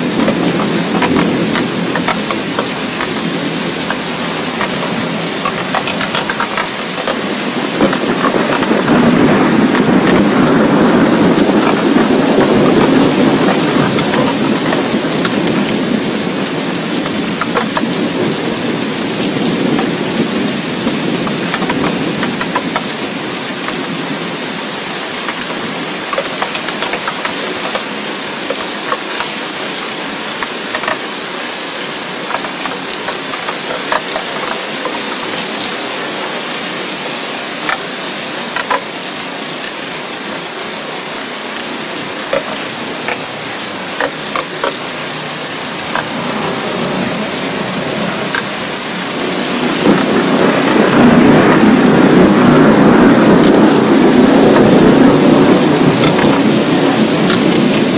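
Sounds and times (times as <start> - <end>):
steady rain falling: 0.0 - 57.9
drops ticking on hard surface: 0.1 - 10.3, 25.2 - 27.9, 30.4 - 31.1, 42.3 - 45.1.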